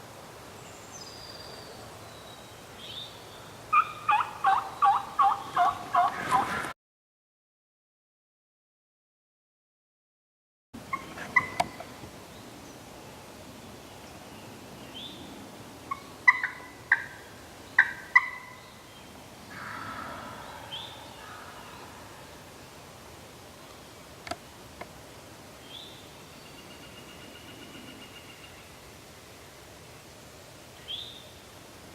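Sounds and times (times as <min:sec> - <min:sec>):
turkeys gobbling: 0:03.7 - 0:06.5, 0:10.9 - 0:11.8, 0:15.9 - 0:17.2, 0:17.8 - 0:18.6.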